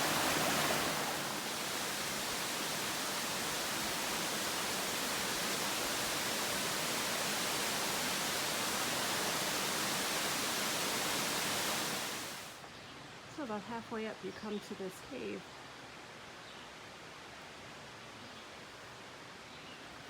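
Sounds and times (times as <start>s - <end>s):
waterfall rushing: 0.0s - 12.6s.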